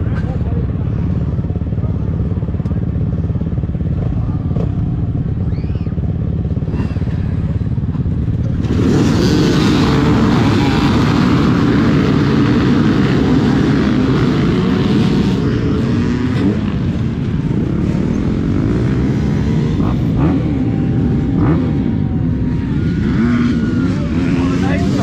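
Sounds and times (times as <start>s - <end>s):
two-stroke dirt bike engine revving: 6.5s - 25.0s.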